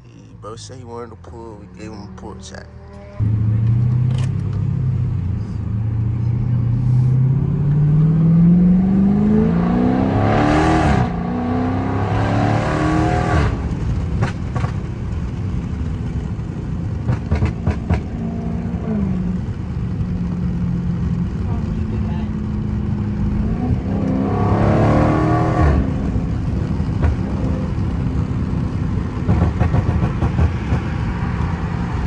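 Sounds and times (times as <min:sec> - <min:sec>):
car engine at full throttle: 0:00.0 - 0:32.0
exhaust pops and crackles: 0:13.4 - 0:24.2, 0:25.6 - 0:31.6.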